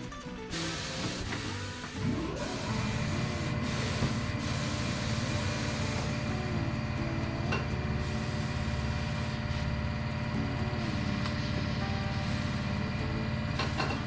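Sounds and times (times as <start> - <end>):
motor running with pulsing hum: 0.0 - 14.0.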